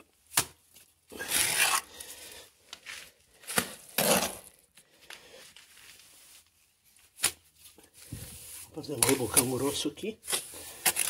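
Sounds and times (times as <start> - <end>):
trowel scraping wet mortar: 1.1 - 2.1, 3.8 - 4.5, 8.3 - 11.0.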